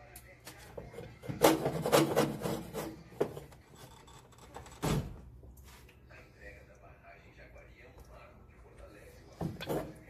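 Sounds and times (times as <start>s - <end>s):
hand tools scraping on metal: 0.9s - 4.4s.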